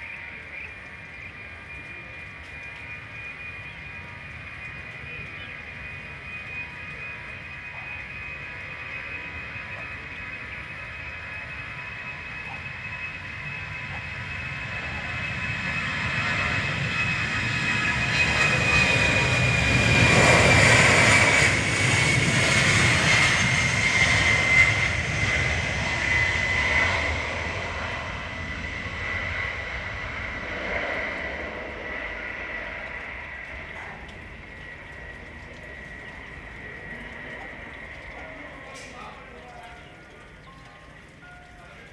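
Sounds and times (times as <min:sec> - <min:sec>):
jet aircraft engines passing: 0:00.0 - 0:41.9.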